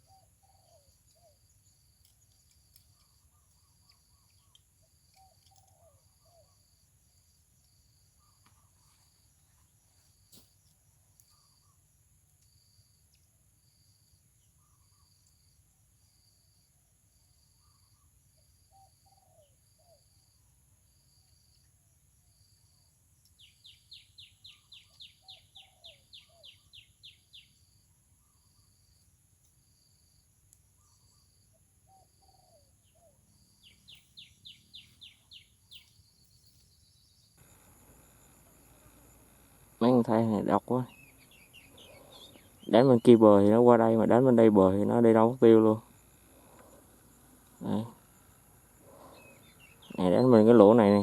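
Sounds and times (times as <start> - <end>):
insect chirping: 0.0 - 51.0
quick repeated bird notes: 37.4 - 51.0.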